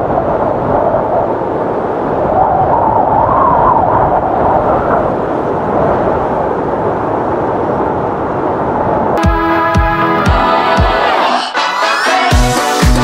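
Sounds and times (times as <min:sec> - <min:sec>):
strong wind howling: 0:00.0 - 0:09.2.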